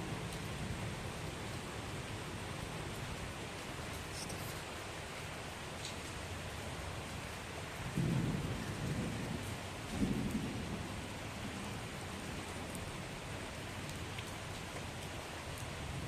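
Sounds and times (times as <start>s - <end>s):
heavy rain falling: 0.0s - 16.0s
thunder rolling: 8.0s - 11.0s.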